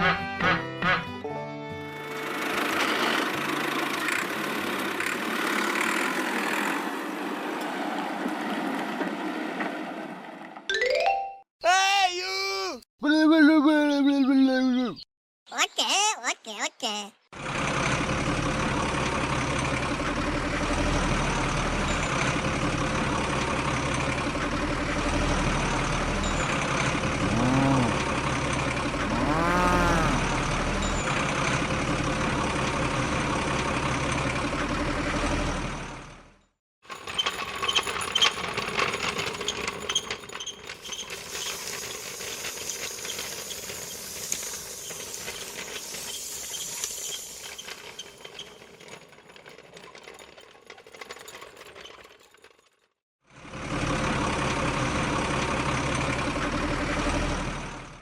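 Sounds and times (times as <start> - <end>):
tractor engine running: 0.0 - 10.6, 17.4 - 52.8, 53.4 - 58.0
rising and falling calls: 29.1 - 30.5
small mechanism clicking and whirring: 36.9 - 52.9.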